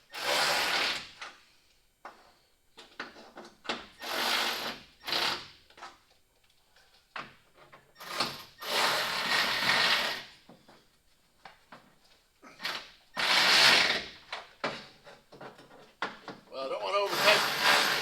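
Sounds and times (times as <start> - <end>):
power driver running nuts: 17.0 - 18.0.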